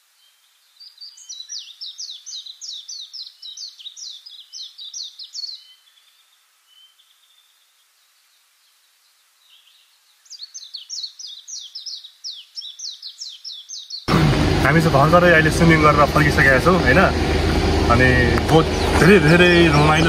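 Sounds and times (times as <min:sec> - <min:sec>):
songbird chirping: 0:00.0 - 0:14.1.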